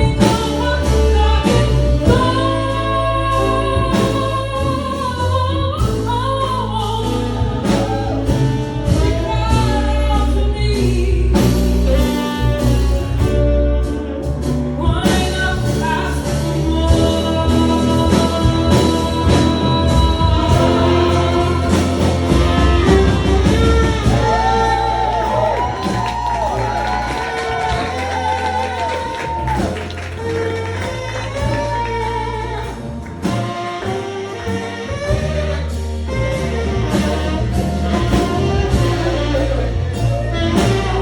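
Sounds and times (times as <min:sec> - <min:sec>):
live band playing slow song: 0:00.0 - 0:41.0
person singing: 0:14.8 - 0:32.7
drum hits: 0:18.7 - 0:31.8.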